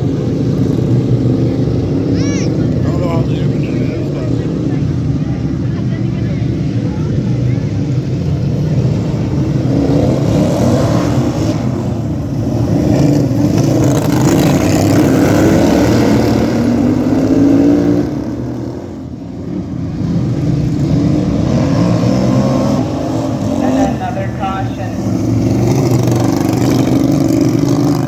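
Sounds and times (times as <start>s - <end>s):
small engines revving: 0.0s - 28.0s.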